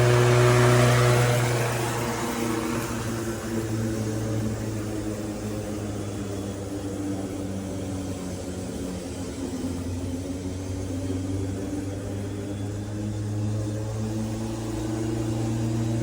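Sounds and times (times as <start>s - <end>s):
lawn mower motor hum: 0.0s - 5.9s.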